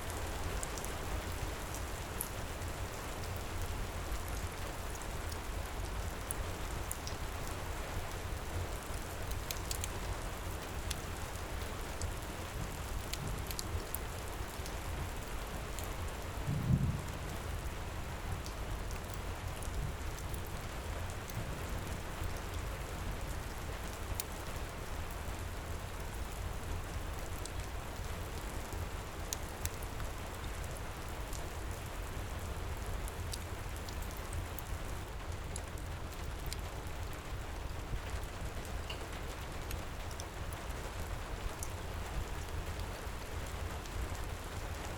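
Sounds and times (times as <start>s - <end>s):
heavy rain: 0.0s - 44.9s
wood fire crackling: 8.0s - 14.7s, 15.6s - 25.1s
low thump: 16.5s - 17.2s.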